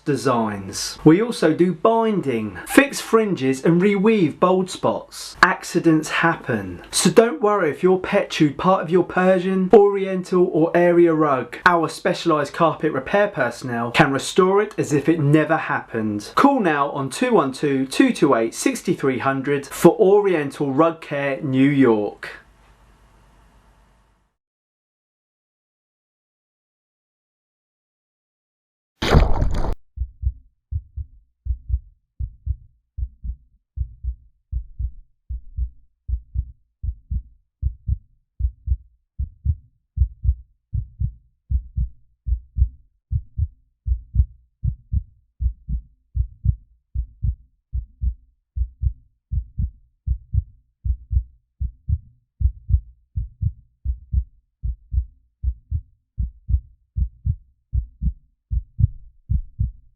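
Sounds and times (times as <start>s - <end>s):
low thumping beat: 30.0s - 59.9s.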